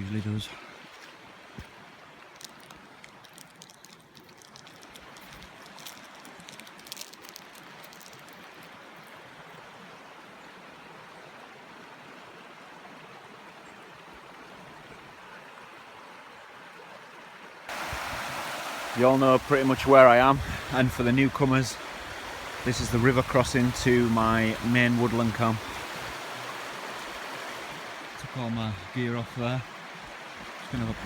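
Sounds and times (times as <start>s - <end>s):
light clicks and rustles: 2.3s - 8.7s
river water rushing: 17.7s - 31.0s.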